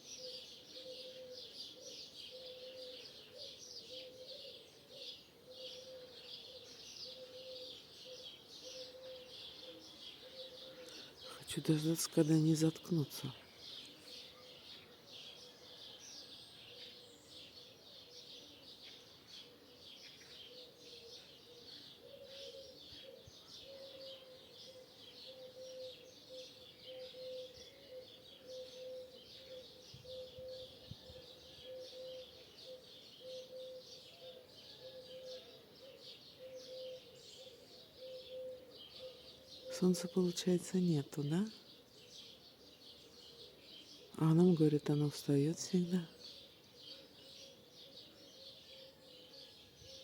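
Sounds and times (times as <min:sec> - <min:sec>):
starlings chirping and whistling: 0:20.0 - 0:40.1.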